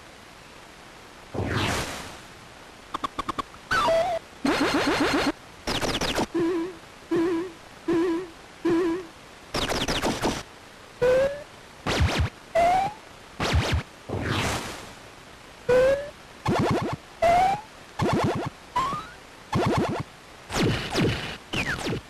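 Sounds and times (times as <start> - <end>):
electronic chirps and beeps: 3.0 - 10.1, 15.7 - 20.0.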